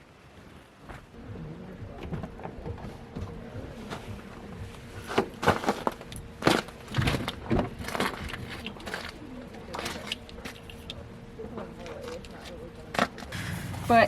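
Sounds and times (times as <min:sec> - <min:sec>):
crampon footsteps on snow and ice: 0:03.2 - 0:10.8.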